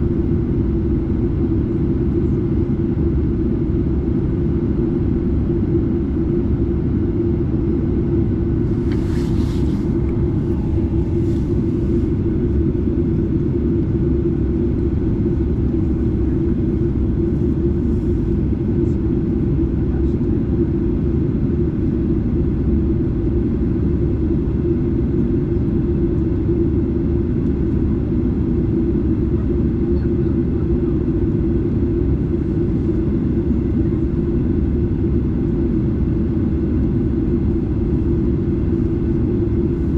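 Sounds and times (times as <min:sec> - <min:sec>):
jet engine drone in cabin: 0:00.0 - 0:39.9.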